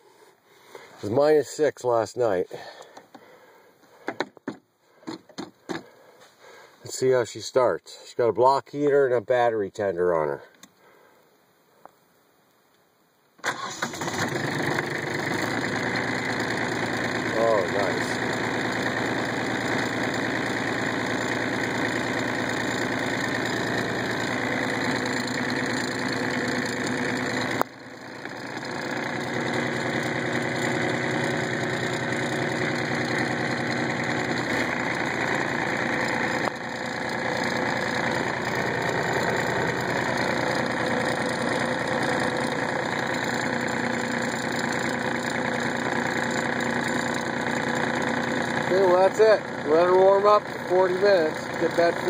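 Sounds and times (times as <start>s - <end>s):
click: 10.5s - 10.8s
diesel tractor engine idling: 13.4s - 52.0s.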